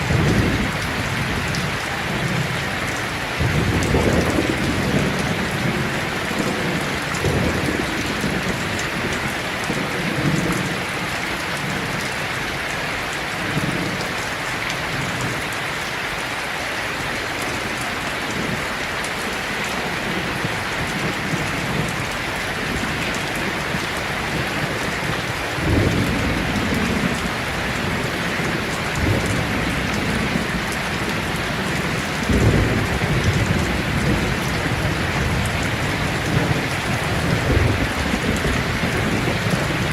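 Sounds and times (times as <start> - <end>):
thunder rumbling: 0.0 - 12.0, 17.4 - 39.9
heavy rain on a tin roof: 0.0 - 39.9.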